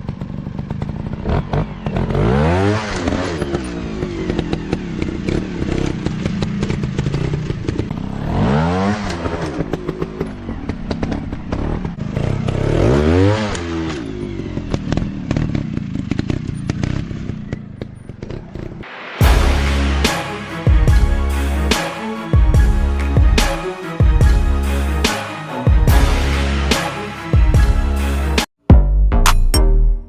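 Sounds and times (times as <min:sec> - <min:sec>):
dirt bike engines revving: 0:00.0 - 0:23.8
music: 0:18.8 - 0:30.0.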